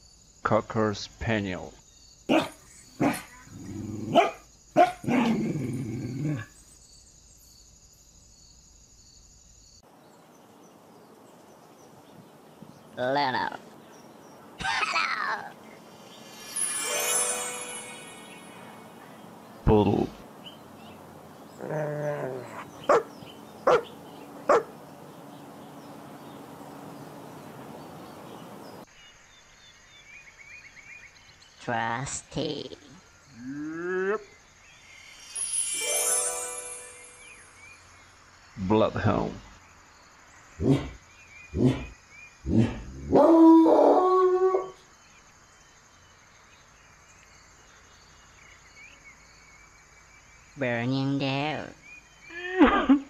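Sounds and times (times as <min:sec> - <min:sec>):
birds chirping: 0:01.0 - 0:07.6, 0:09.8 - 0:52.4
dog barking: 0:02.3 - 0:03.4, 0:04.1 - 0:05.4, 0:22.6 - 0:24.7.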